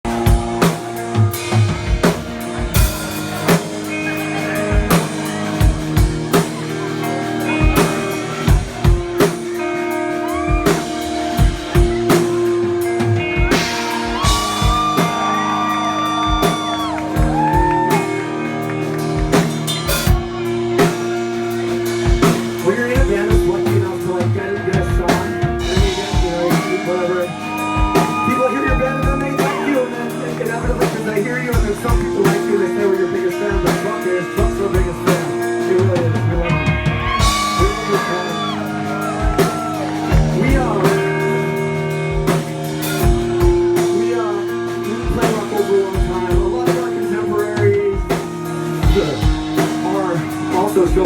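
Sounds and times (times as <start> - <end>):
drum kit hits: 0.0 - 9.6, 10.4 - 23.8, 24.8 - 29.5, 36.6 - 44.2, 48.0 - 51.0
sustained electric guitar: 0.0 - 51.0.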